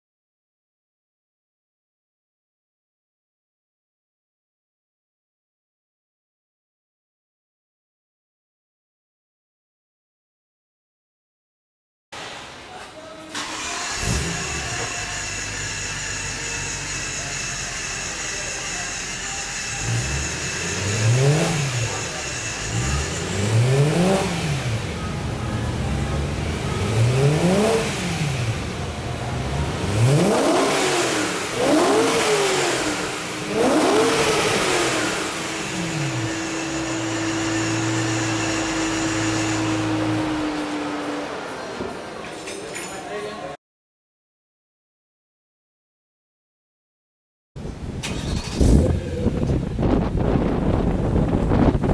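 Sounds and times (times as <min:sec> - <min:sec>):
car engine revving and idling: 0:13.4 - 0:42.2.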